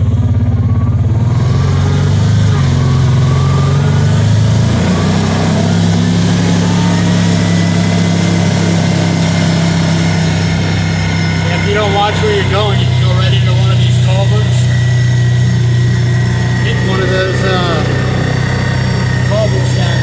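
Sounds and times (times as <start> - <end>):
side-by-side engine running: 0.0 - 20.0.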